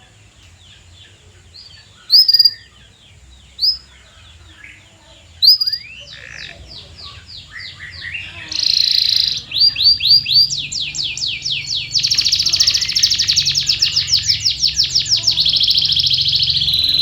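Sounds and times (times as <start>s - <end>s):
canary singing: 0.0s - 17.0s.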